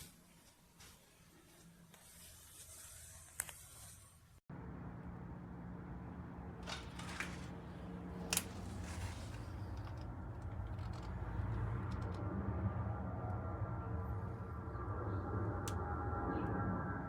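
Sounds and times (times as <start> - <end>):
steady low hum: 4.5 - 17.0.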